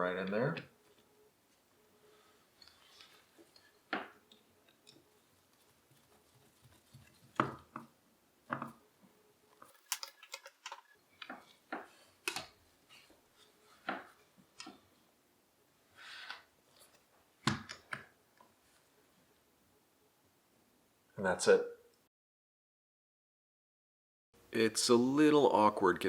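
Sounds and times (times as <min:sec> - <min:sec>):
shotgun parts clicking and knocking: 0:09.6 - 0:11.4.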